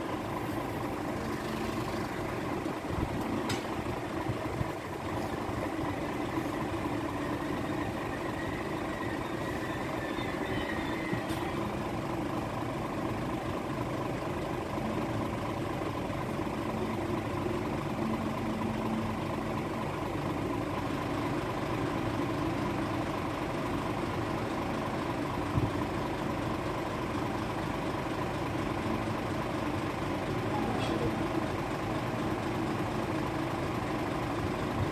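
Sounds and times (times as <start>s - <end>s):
idling vehicles humming: 0.0s - 34.9s.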